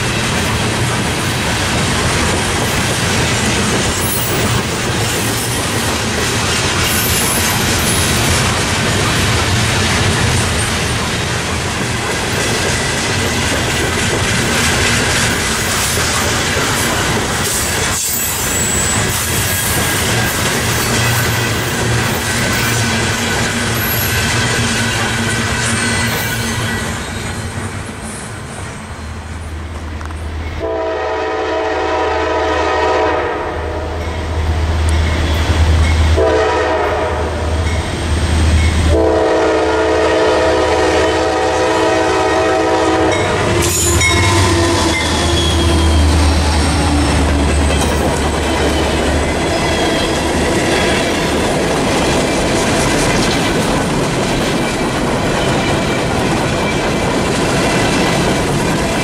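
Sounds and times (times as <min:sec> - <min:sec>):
train wheels clattering on rail joints: 0:00.0 - 0:28.7, 0:42.4 - 0:59.0
diesel locomotive engines rumbling: 0:00.0 - 0:59.0
train horn blasts: 0:30.6 - 0:34.1, 0:36.1 - 0:37.6, 0:38.9 - 0:47.2.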